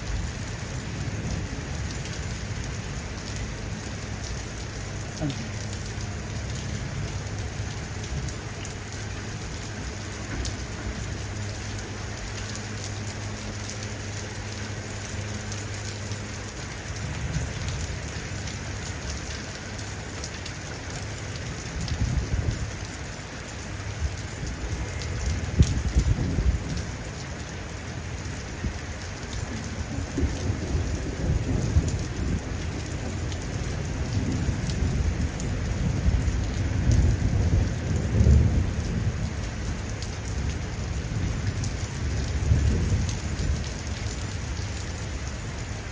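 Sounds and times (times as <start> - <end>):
steady rain falling: 0.0 - 45.9
distant thunder rumbling: 28.5 - 43.8.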